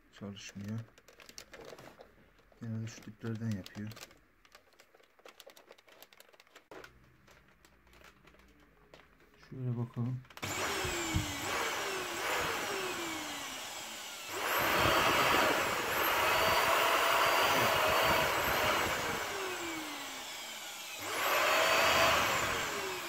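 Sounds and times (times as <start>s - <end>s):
vacuum cleaner motor surging: 10.4s - 23.0s.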